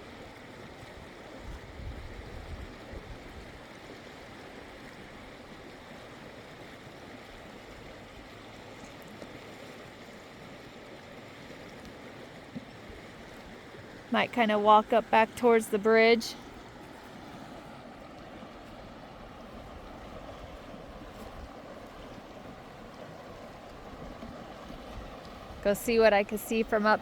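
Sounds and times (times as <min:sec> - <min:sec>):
river rushing: 0:03.7 - 0:27.0.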